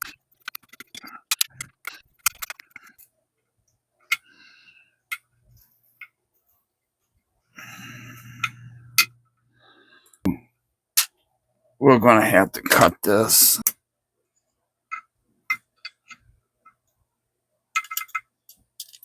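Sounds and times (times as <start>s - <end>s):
clicks and taps of small parts: 17.8s - 19.0s.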